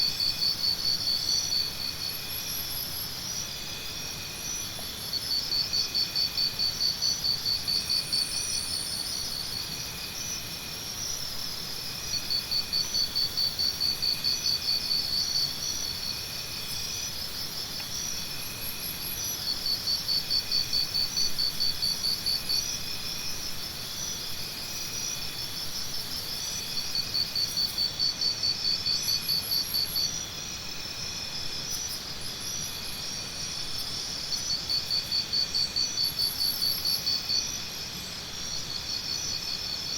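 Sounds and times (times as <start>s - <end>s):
insects trilling: 0.0s - 39.9s
loud pulsing insect call: 0.0s - 39.9s.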